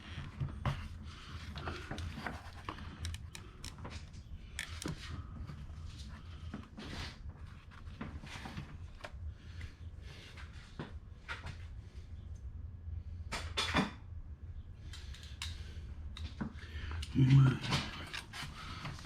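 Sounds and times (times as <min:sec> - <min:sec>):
low steady hum: 0:00.0 - 0:19.0
tools clicking and knocking: 0:01.9 - 0:05.0.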